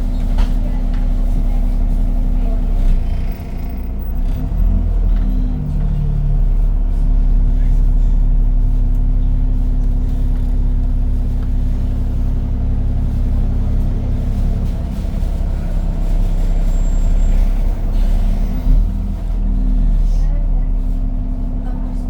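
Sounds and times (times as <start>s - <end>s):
bus engine idling with fan hum: 0.0s - 22.0s.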